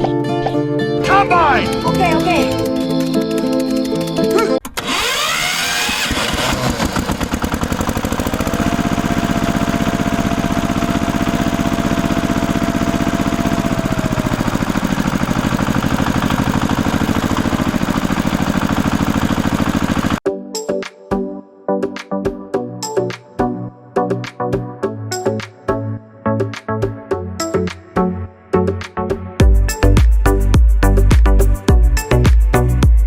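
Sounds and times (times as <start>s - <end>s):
small engine chugging: 1.1s - 20.2s.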